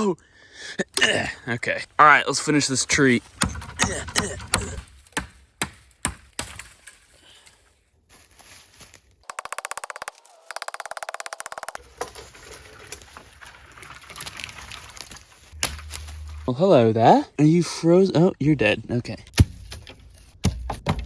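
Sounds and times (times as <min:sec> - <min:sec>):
dry wood cracking: 0:00.9 - 0:07.6, 0:09.2 - 0:16.5.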